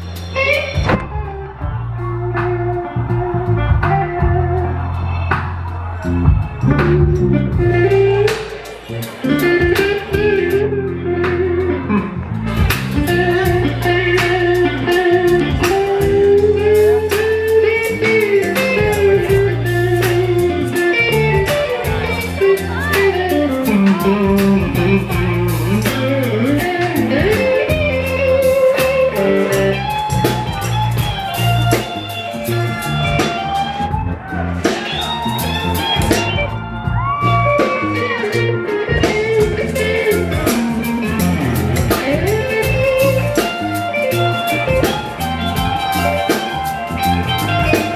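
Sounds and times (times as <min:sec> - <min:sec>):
electric guitar: 0:00.0 - 0:47.9
live soul-blues band: 0:00.0 - 0:47.9.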